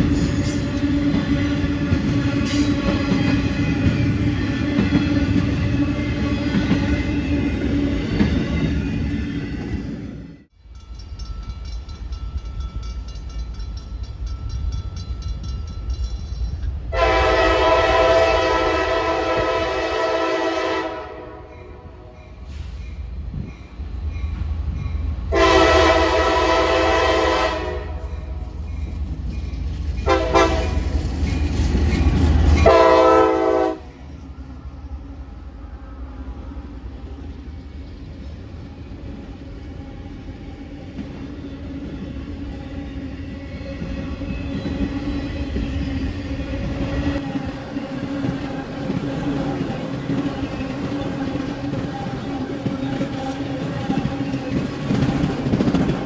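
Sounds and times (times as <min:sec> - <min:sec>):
passing train rumble: 0:00.0 - 0:56.0
locomotive air horn blasts: 0:16.9 - 0:22.1, 0:25.3 - 0:28.1, 0:30.1 - 0:30.8, 0:32.6 - 0:33.9.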